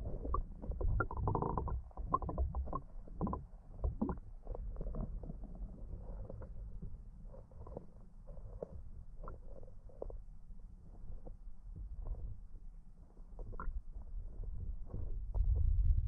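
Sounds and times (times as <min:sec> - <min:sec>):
underwater rumble of water: 0:00.0 - 0:16.0.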